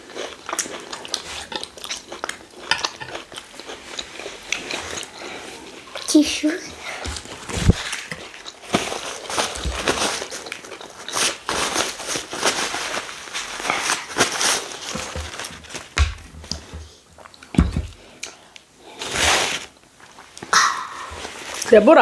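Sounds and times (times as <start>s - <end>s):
chewing and mouth noises: 0.0s - 6.2s
dull thumps: 14.9s - 16.9s, 17.5s - 18.0s.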